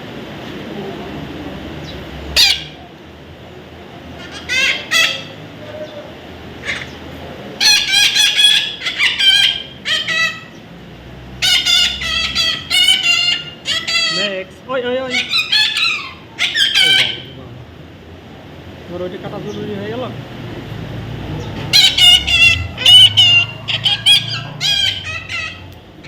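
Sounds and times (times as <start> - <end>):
parrot squawking: 2.3 - 2.9, 4.2 - 10.6, 11.4 - 17.4, 21.4 - 26.0.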